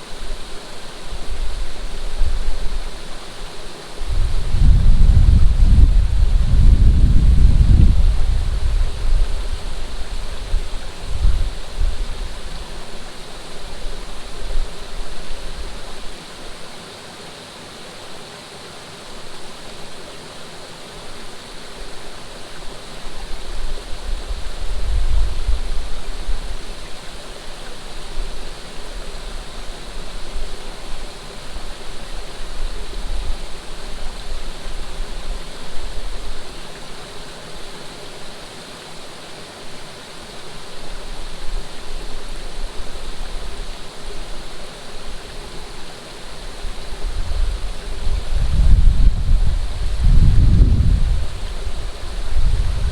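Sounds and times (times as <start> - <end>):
water rushing: 0.0 - 52.9
wind gusts on microphone: 3.9 - 15.9, 23.1 - 27.1, 40.8 - 52.9.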